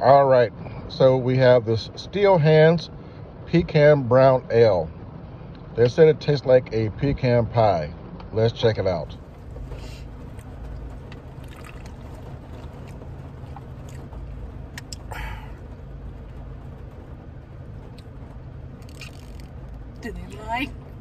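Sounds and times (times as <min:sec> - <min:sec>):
low steady hum: 0:00.0 - 0:21.0
rain on vehicle: 0:06.6 - 0:21.0.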